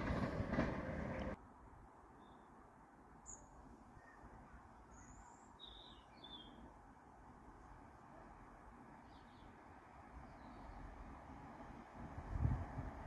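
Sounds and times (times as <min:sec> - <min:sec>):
train noise: 0:00.0 - 0:01.4, 0:06.5 - 0:13.0
faint bird chirps: 0:03.2 - 0:06.6.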